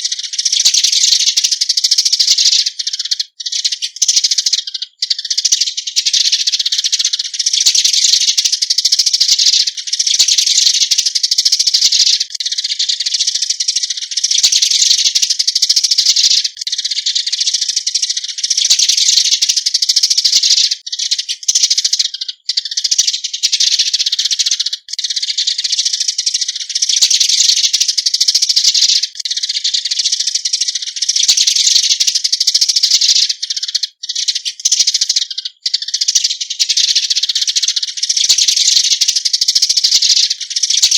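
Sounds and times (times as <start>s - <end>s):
sparrows chirping chatter: 0.0s - 40.9s.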